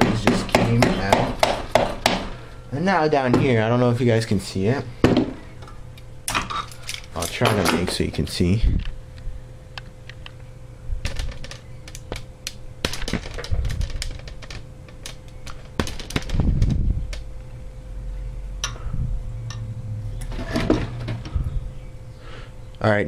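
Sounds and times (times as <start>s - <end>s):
steady low hum: 0.0s - 23.0s
metal parts clicking and clinking: 5.6s - 8.2s.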